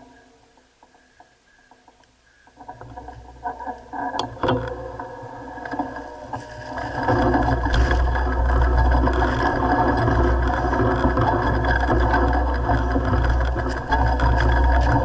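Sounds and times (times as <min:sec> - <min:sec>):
mountain bike rattling over rough ground: 0:02.6 - 0:15.0
wind rumble on microphone: 0:04.6 - 0:15.0.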